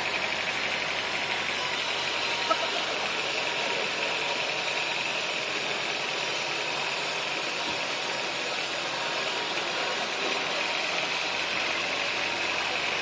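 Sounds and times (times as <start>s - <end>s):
sawmill machinery drone: 0.0s - 13.0s.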